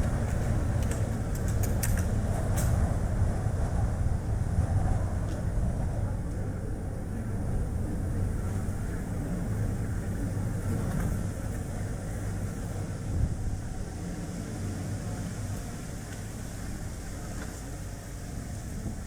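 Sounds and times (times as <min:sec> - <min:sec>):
car tyre road rumble: 0:00.0 - 0:19.0
gusting wind: 0:00.0 - 0:19.0.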